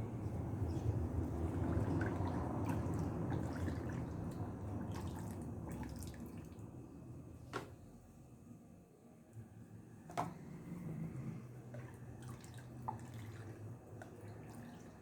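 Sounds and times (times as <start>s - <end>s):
liquid pouring and dripping: 11.7s - 15.0s.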